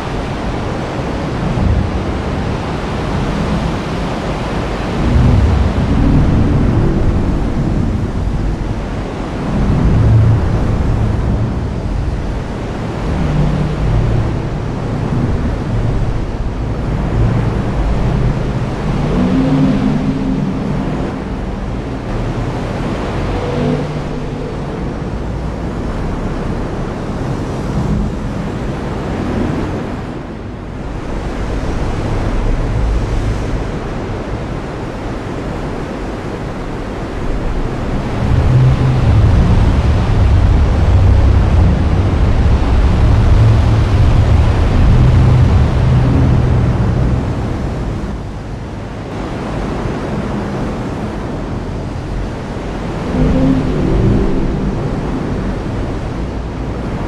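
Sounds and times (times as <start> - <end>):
rumbles of thunder: 4.9 - 12.0.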